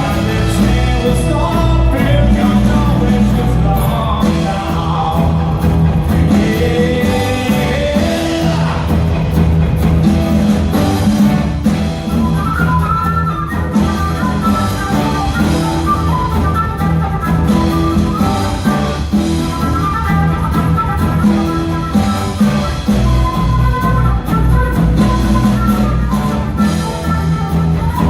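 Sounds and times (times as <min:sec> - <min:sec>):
person singing: 0:00.0 - 0:09.4
drum kit: 0:00.0 - 0:28.0
guitar: 0:00.0 - 0:28.0.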